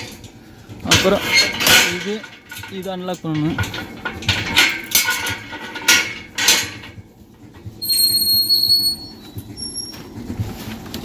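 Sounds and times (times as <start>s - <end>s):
metal latch clanks: 0.9s - 6.9s
high whistling squeak: 7.8s - 10.0s.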